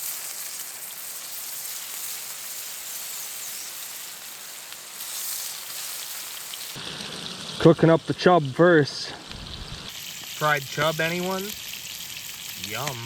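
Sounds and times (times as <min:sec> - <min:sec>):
fish deep-frying in oil: 0:00.0 - 0:13.0.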